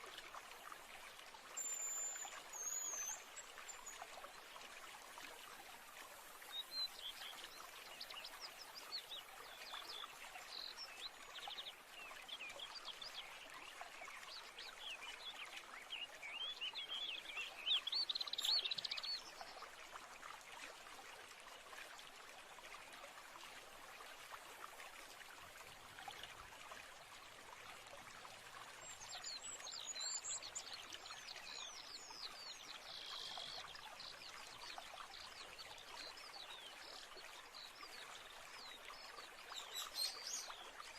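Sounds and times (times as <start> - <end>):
stream running: 0.0 - 40.9
songbirds chirping and trilling: 16.0 - 19.4.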